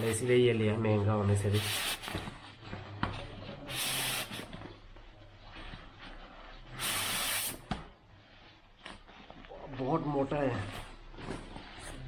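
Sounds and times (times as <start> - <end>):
fabric rustling: 4.4 - 12.0.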